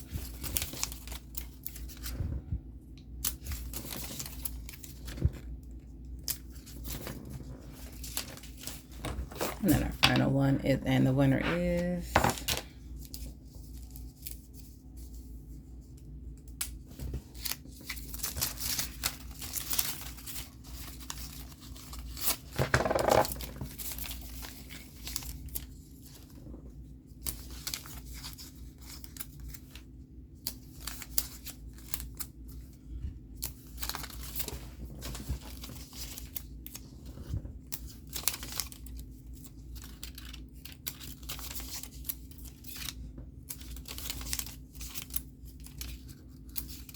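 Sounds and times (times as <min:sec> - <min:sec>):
paper rustling and crinkling: 0:00.0 - 0:02.6, 0:03.2 - 0:10.4, 0:11.4 - 0:46.9.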